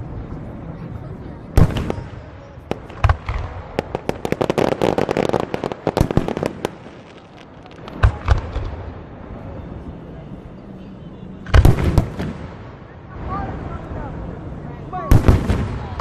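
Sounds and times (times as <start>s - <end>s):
fireworks bursting: 1.5s - 9.4s, 11.5s - 13.6s, 15.0s - 16.0s
firework pops: 2.7s - 8.8s.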